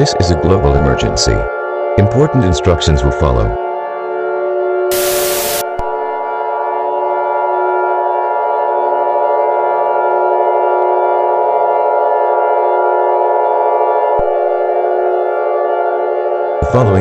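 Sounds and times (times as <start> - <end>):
electronic alert tone chord: 4.9 - 6.4.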